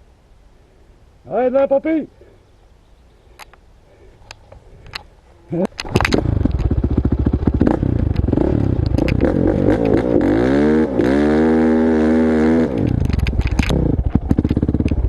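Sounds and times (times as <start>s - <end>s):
dirt bike engine revving: 5.9s - 15.0s.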